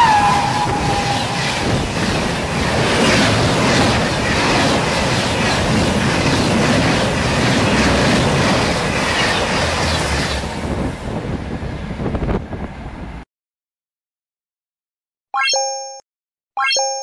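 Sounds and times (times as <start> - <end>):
passenger train passing at speed: 0.0 - 13.3.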